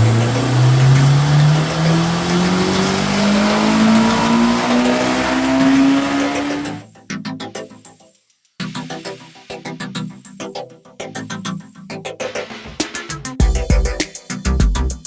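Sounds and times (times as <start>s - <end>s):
car engine accelerating hard: 0.0s - 6.8s.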